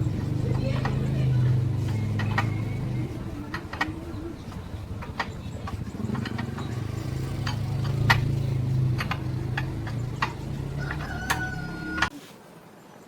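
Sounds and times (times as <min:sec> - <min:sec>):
metal clinks and taps: 0:00.0 - 0:11.7
steady low hum: 0:00.0 - 0:12.1.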